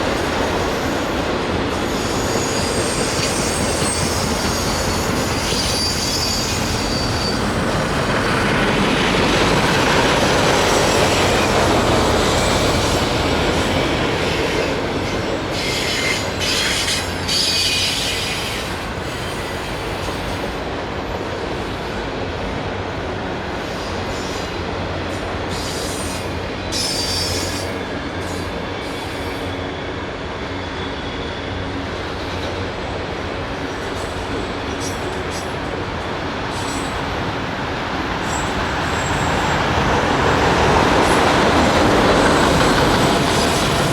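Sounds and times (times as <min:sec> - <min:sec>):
freight train cars rolling: 0:00.0 - 0:20.3, 0:23.8 - 0:43.9
high-pitched wheel squeals: 0:01.8 - 0:07.7, 0:13.7 - 0:19.6.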